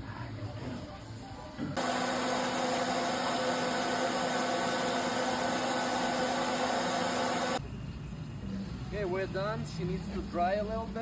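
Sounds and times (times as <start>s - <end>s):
blow dryer running: 1.8s - 7.6s.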